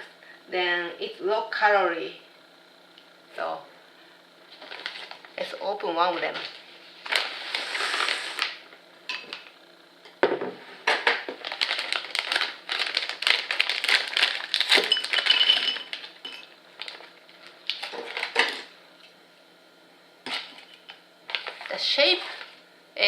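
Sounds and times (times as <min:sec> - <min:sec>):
plastic snack pack tearing: 0:11.4 - 0:16.1, 0:16.8 - 0:18.7, 0:21.3 - 0:22.5.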